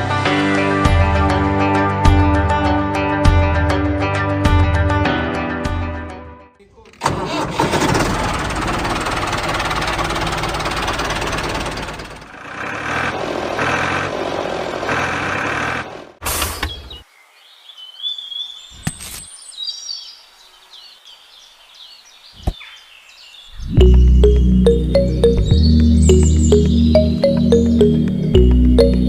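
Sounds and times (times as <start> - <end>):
rough engine running: 7.0 - 16.2
birds chirping: 16.5 - 29.0.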